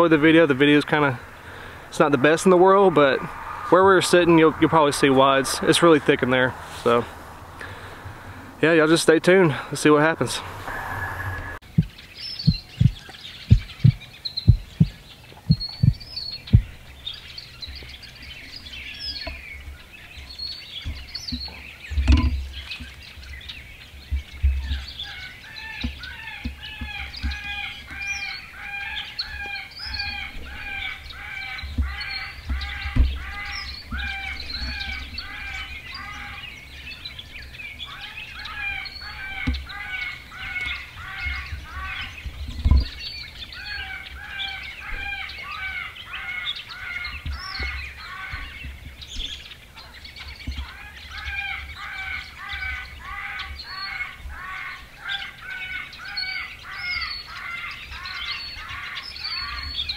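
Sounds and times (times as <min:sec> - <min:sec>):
birds chirping: 0:00.0 - 0:59.9
repeating pitched call: 0:01.0 - 0:11.6.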